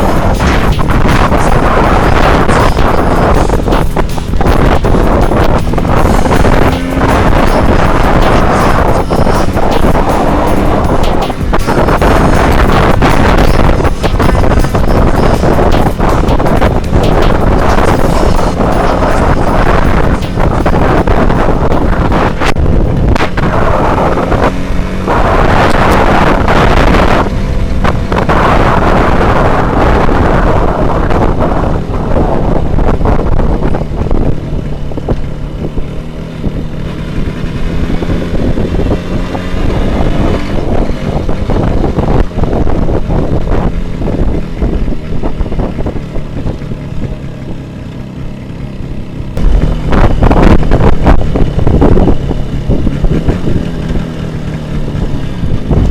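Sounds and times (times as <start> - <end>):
motorcycle engine running: 0.0 - 55.9
wind buffeting microphone: 0.0 - 55.9.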